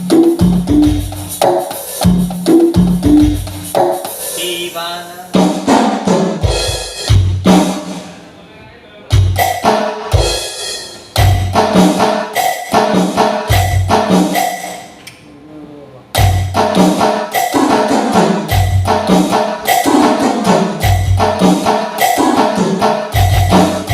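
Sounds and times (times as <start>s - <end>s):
electronic percussion hits: 9.2s - 15.0s, 16.2s - 23.9s.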